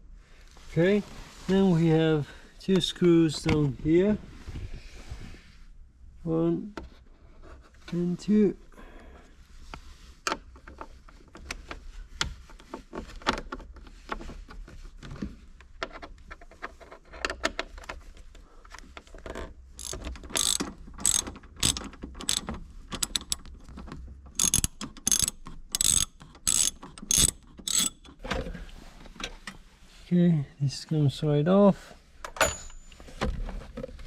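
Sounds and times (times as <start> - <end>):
ratcheting hand tool clicking: 19.8 - 23.5, 24.4 - 28.2.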